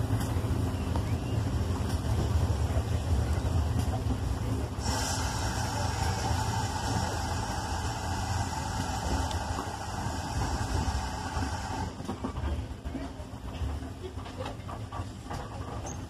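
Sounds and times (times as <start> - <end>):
steam train rumbling: 0.0 - 16.0
steam hiss: 4.7 - 12.2.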